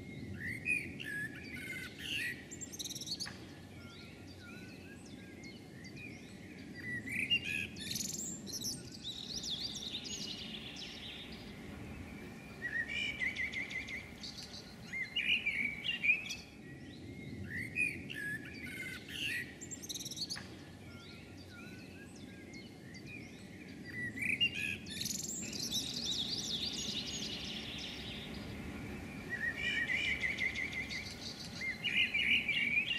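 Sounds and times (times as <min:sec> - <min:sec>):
low background noise: 0:00.0 - 0:32.9
songbird warbling: 0:06.8 - 0:16.5, 0:23.9 - 0:32.9.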